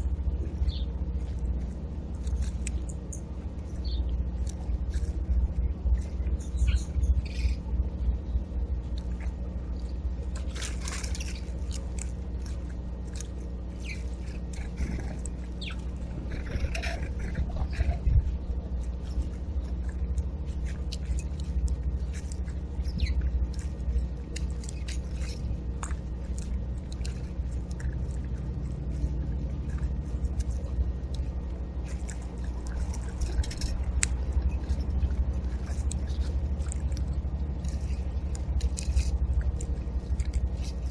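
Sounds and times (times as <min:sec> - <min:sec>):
low rumble: 0:00.0 - 0:40.9
small birds chirping: 0:00.4 - 0:01.7, 0:02.3 - 0:28.2.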